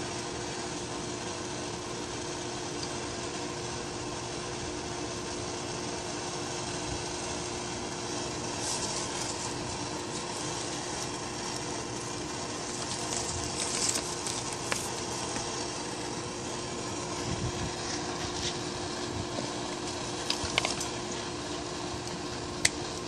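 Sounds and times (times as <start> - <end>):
heat gun blowing hiss: 5.5 - 23.0
wire and tubing rustling: 8.1 - 23.0.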